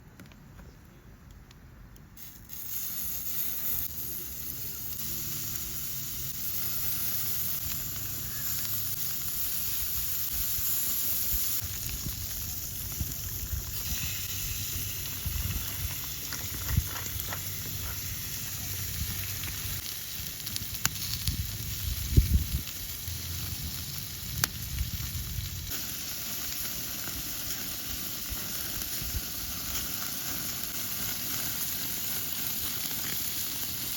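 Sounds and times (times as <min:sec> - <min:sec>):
meat sizzling on a griddle: 0:02.2 - 0:33.9.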